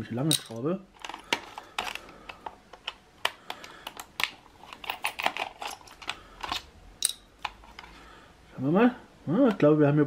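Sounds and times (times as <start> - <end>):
small clicks of screws and plastic case: 1.0 - 6.7.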